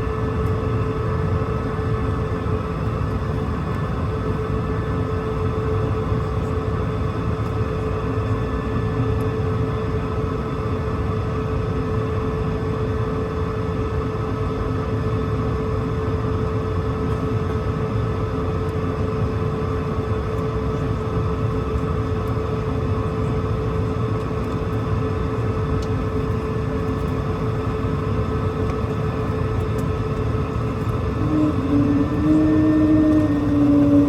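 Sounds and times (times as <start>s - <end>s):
jet engines whining: 25.8s - 34.0s
broad rumble: 30.6s - 34.0s.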